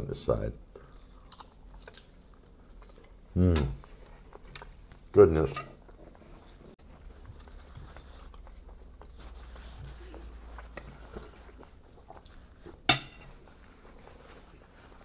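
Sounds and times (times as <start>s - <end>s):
person chewing: 0.8s - 5.1s, 5.8s - 14.2s
paper napkin rustling: 6.2s - 15.0s.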